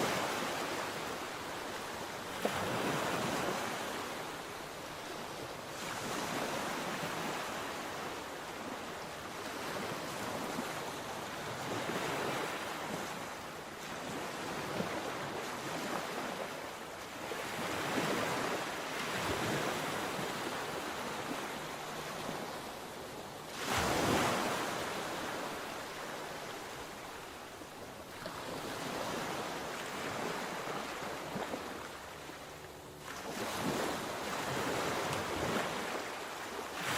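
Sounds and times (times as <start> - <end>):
sea waves breaking on shore: 0.0 - 36.9.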